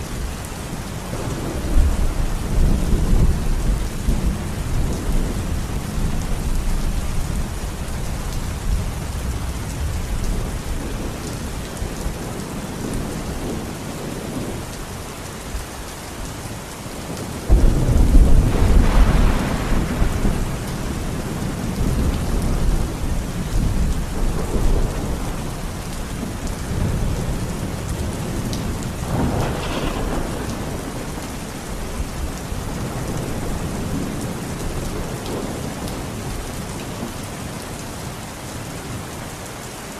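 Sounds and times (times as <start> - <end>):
rolling thunder: 0.0 - 14.8, 17.1 - 37.0
heavy rain: 0.0 - 39.9
loud thunderclap: 17.5 - 25.6, 26.2 - 36.0.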